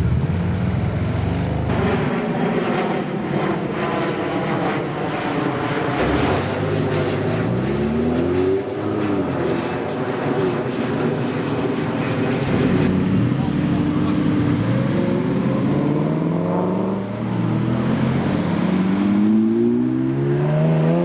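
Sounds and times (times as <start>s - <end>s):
engine accelerating: 0.0s - 2.1s, 12.5s - 21.0s
supercar engines running: 12.5s - 19.2s.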